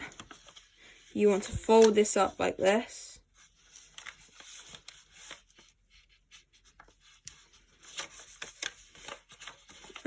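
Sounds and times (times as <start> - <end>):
paper rustling being folded: 0.0 - 10.0
small paper ticks: 6.7 - 10.0.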